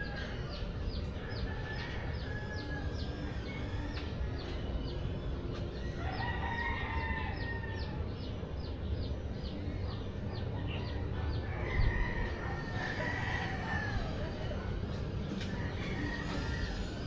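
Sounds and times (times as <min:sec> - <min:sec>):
rooster crowing: 0:06.0 - 0:08.0, 0:11.5 - 0:14.5, 0:15.5 - 0:17.0.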